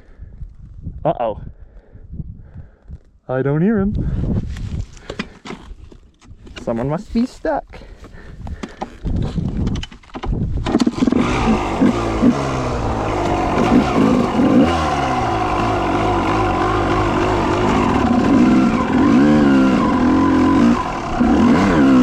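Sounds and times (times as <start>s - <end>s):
dirt bike engine revving: 10.8s - 22.0s.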